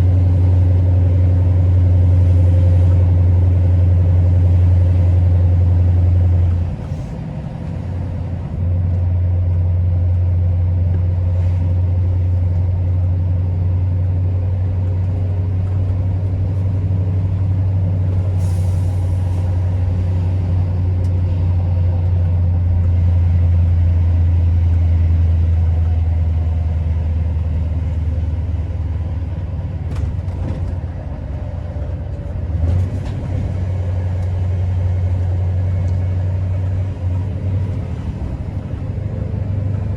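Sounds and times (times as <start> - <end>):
diesel truck engine droning: 0.0 - 39.9
air hiss: 18.4 - 19.7.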